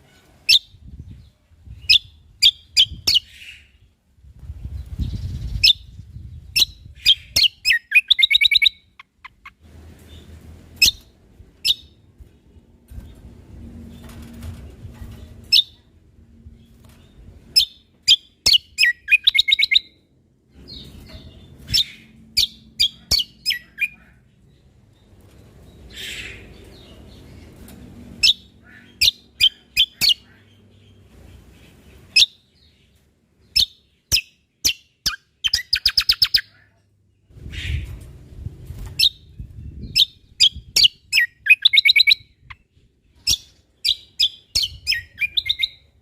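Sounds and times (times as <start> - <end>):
songbird calling: 5.1 - 9.6.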